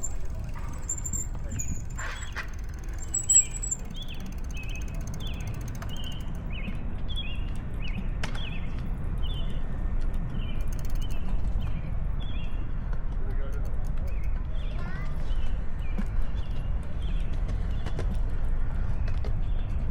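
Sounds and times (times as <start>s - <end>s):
small bird chirping: 0.0s - 6.7s
road noise: 0.0s - 15.8s
wind: 0.0s - 19.9s.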